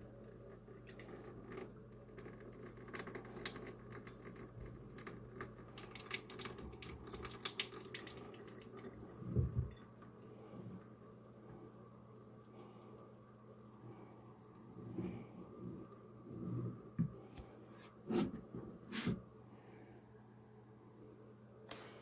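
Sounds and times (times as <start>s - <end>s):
water trickling and dripping: 0.0s - 12.6s
small clicks and splashes: 0.0s - 13.8s.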